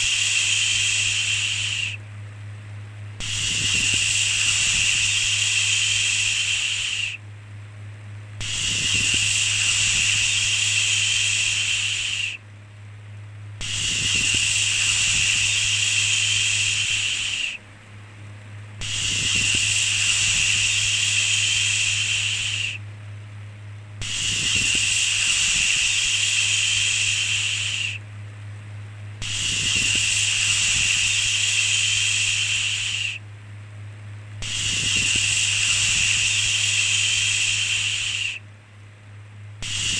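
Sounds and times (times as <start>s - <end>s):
shushing sounds: 0.0s - 2.0s
steady low hum: 0.0s - 39.9s.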